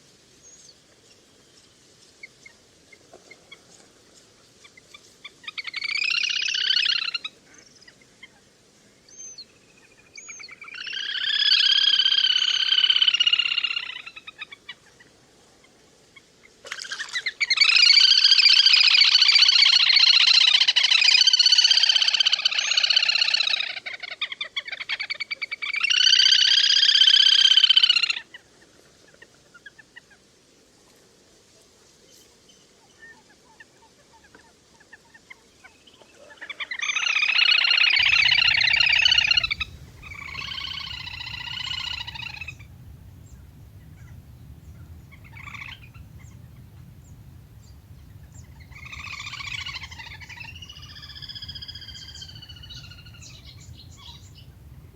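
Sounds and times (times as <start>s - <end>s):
waterbird trilling calls: 36.9s - 54.9s.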